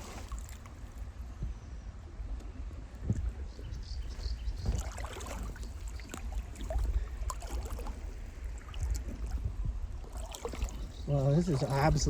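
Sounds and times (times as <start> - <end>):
footsteps splashing through water: 0.0 - 0.8, 4.0 - 12.0.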